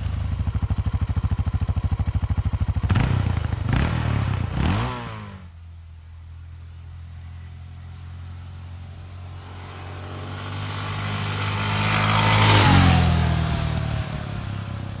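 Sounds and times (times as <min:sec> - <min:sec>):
motorcycle engine running: 0:00.0 - 0:15.0
vehicle passing by: 0:06.9 - 0:15.0.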